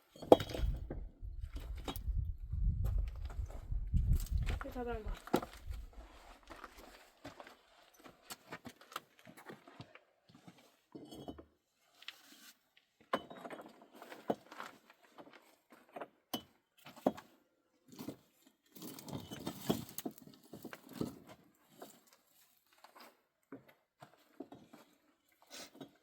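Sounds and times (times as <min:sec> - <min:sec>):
rustling and scraping: 0:11.9 - 0:12.7, 0:17.9 - 0:23.3.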